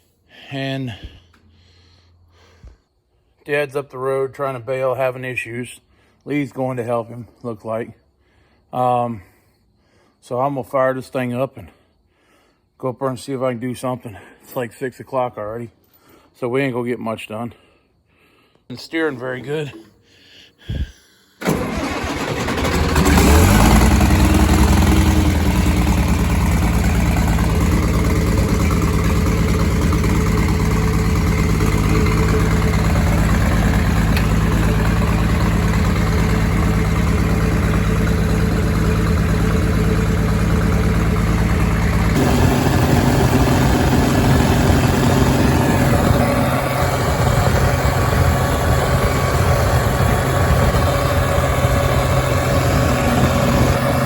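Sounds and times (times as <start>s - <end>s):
tractor diesel engine idling: 20.7s - 54.0s.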